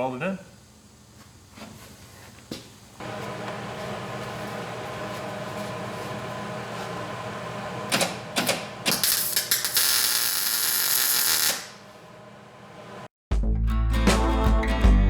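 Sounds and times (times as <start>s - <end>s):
steady shop hum: 0.0s - 13.1s
welding arc crackling: 3.0s - 12.1s.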